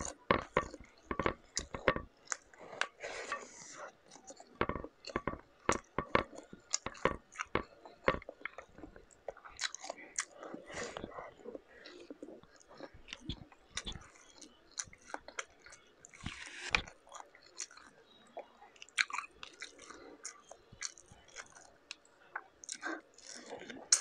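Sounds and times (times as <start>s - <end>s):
chewing with wet mouth clicks: 4.0s - 24.0s.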